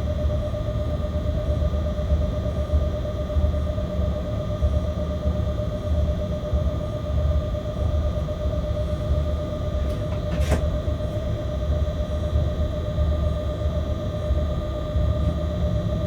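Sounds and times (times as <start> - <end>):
train cab rumble: 9.4 - 11.4.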